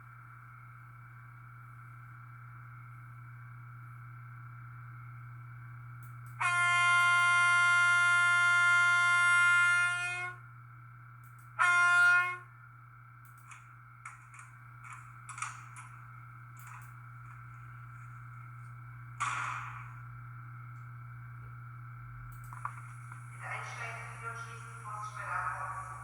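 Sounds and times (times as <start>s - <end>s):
steady hum: 0.0s - 26.0s
model train horn blasts: 6.3s - 10.5s, 11.6s - 12.6s.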